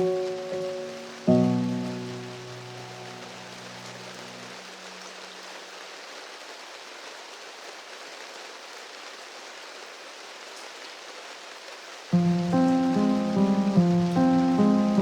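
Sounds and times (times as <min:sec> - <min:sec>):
piano music: 0:00.0 - 0:04.6, 0:12.2 - 0:15.0
steady rain hiss: 0:00.0 - 0:15.0.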